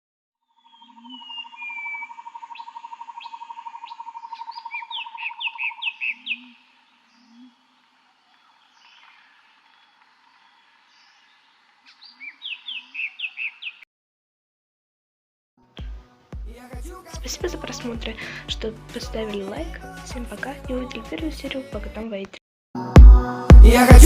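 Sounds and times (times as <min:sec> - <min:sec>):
bird trilling: 0:00.6 - 0:09.8, 0:11.9 - 0:13.8
bird chirps: 0:00.6 - 0:13.9.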